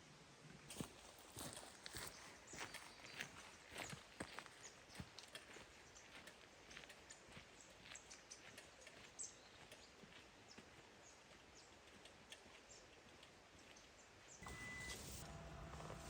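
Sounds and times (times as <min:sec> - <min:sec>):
faint light ticks and clicks: 0:04.9 - 0:10.7, 0:11.3 - 0:14.0
high beep: 0:14.4 - 0:15.2.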